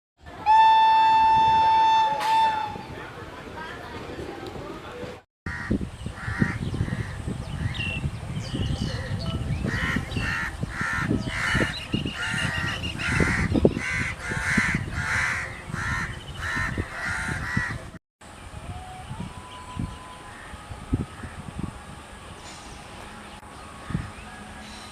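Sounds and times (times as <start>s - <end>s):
crows cawing: 5.5s - 6.6s.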